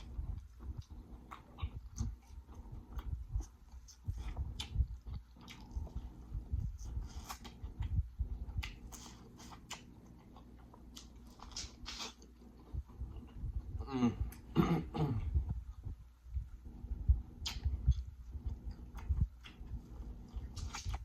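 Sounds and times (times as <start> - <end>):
chewing corn on the cob: 0.0 - 13.4, 17.4 - 21.0
mouth clicks: 17.4 - 17.9.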